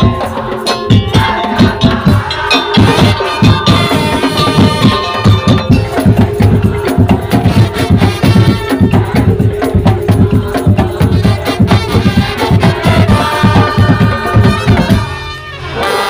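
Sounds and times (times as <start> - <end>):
drums playing fast rhythm: 0.0 - 16.0
held melody line: 0.0 - 16.0.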